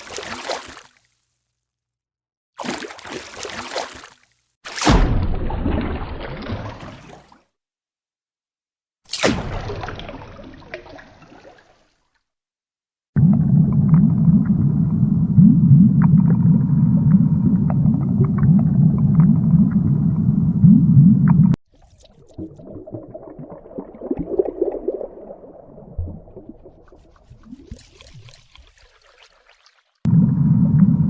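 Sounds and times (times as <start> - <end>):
churning water rumble underwater: 13.2 - 28.6, 30.1 - 31.0
water bubbling and gurgling: 13.2 - 31.0.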